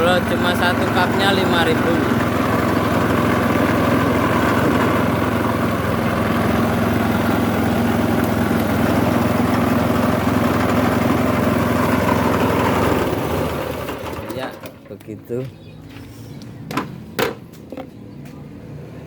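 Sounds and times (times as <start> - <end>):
juice pressing machine motor humming: 0.0 - 15.0.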